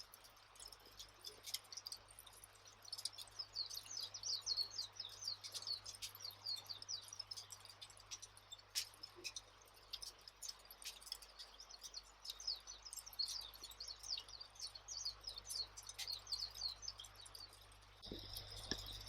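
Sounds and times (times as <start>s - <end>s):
small birds chirping: 0.0s - 19.0s
wood fire crackling and popping: 4.8s - 19.0s.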